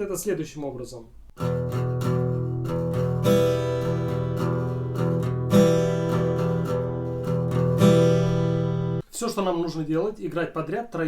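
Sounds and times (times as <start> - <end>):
guitar strumming: 1.3 - 9.0.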